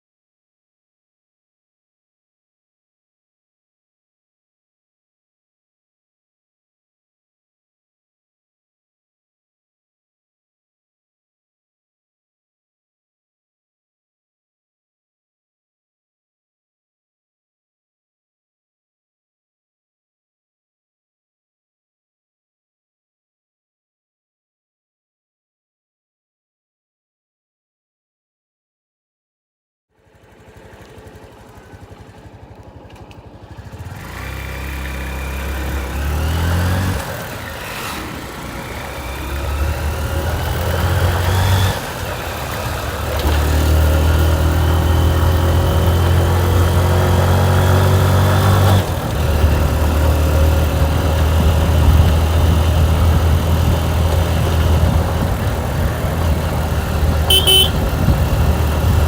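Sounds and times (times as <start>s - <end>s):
motorcycle engine accelerating: 30.0s - 59.0s
short high beep: 57.3s - 57.8s.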